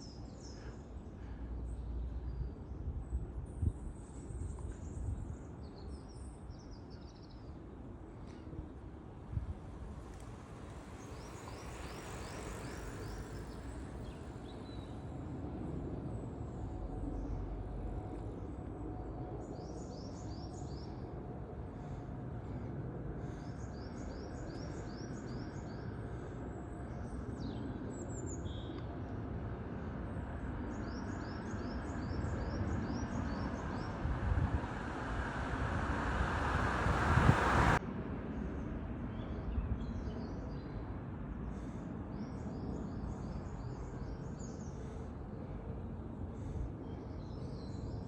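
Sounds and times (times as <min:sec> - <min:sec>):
jet aircraft engine noise: 0:28.8 - 0:39.0.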